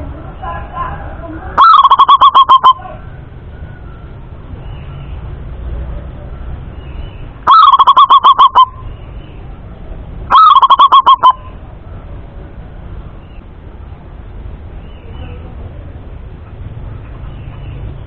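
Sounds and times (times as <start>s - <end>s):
dove cooing: 1.6s - 3.0s, 7.5s - 8.8s, 10.3s - 11.6s.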